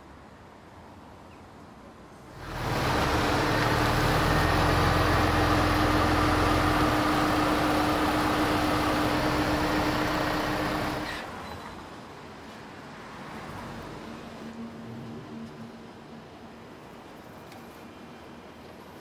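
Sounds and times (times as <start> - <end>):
car engine running: 2.4 - 11.2.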